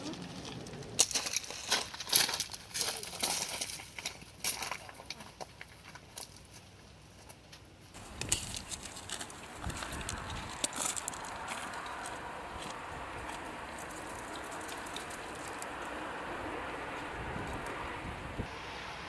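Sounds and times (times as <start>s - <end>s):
strong wind rushing: 9.5s - 13.8s, 15.7s - 18.8s.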